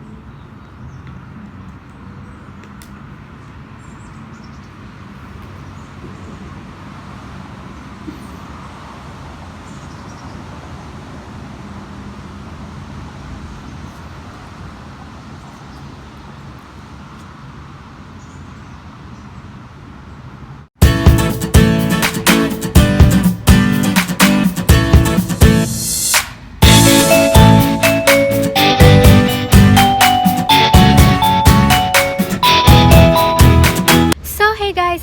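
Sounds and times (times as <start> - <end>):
distant traffic hum: 0.0 - 35.0.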